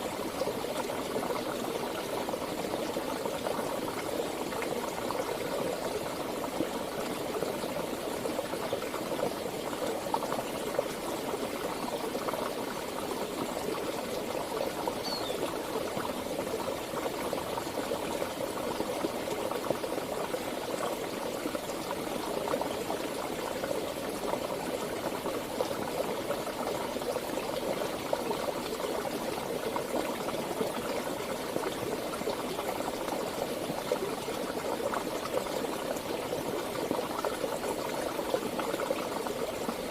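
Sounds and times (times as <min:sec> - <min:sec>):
stream bubbling and gurgling: 0:00.0 - 0:39.9
faint high chirp: 0:15.0 - 0:15.4.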